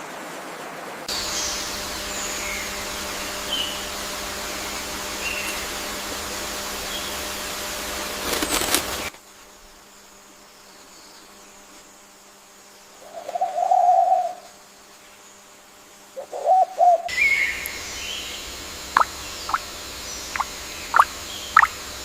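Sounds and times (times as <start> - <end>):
bird calls: 1.1 - 7.6, 13.0 - 14.6, 16.2 - 21.8
quiet forest ambience: 1.1 - 22.0.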